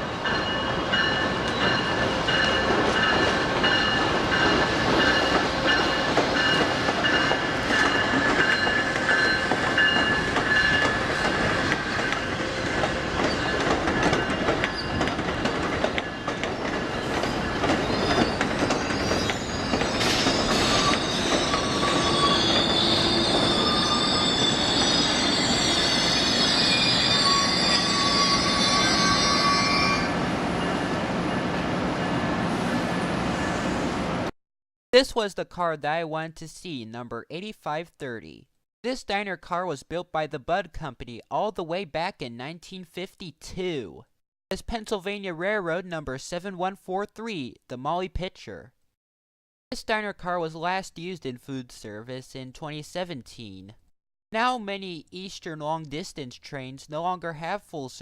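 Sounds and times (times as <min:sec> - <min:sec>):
train wheels squealing on rails: 0:00.0 - 0:34.0.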